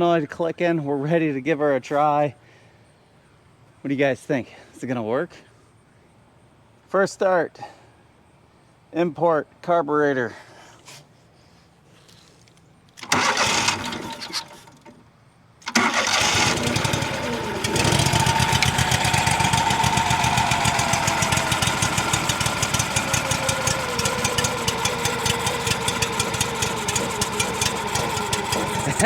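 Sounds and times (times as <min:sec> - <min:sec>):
engine cranking: 0:12.4 - 0:29.0
engine running steadily: 0:13.0 - 0:14.9, 0:15.6 - 0:29.0.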